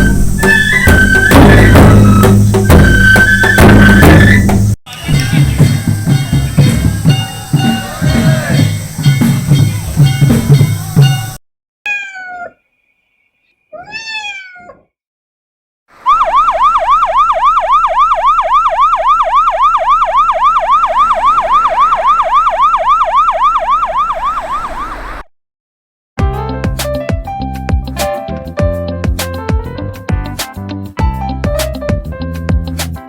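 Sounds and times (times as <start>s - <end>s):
electronic siren-like warble: 0.0s - 8.7s, 16.0s - 25.3s
short meow-like calls: 11.9s - 12.6s, 13.7s - 14.9s.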